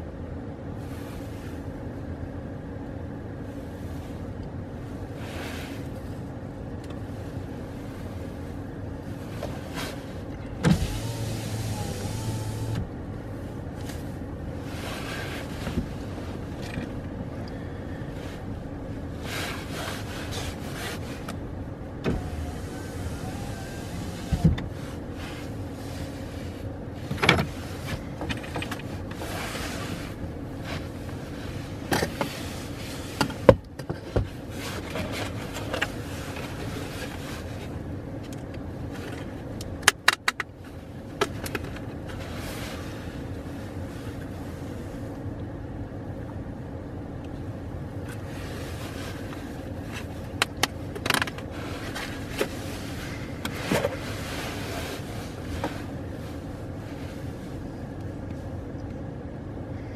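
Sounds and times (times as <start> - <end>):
car engine idling: 0.0 - 59.9
knocks and clicks in car cabin: 24.2 - 24.7, 33.2 - 34.4.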